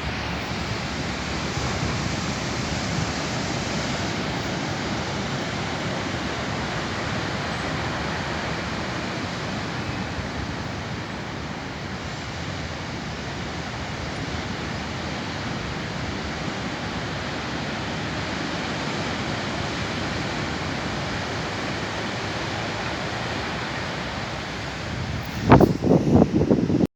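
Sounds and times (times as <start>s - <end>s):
ocean surf roaring: 0.0s - 26.9s.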